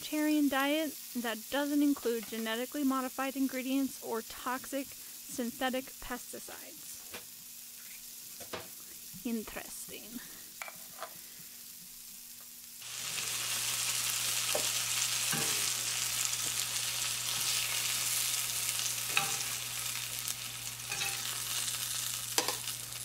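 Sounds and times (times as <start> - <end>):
food sizzling in hot oil: 0.0 - 23.0
metal tongs clinking against pan: 15.3 - 15.7, 19.0 - 19.7, 20.8 - 21.7, 22.4 - 22.8.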